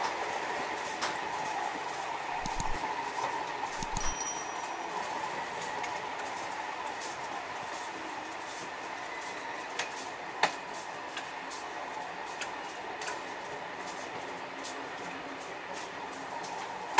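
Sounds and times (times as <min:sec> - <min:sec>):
freight train rolling on rails: 0:00.0 - 0:16.9
metallic clicks and clinks: 0:02.3 - 0:02.8, 0:03.7 - 0:04.6.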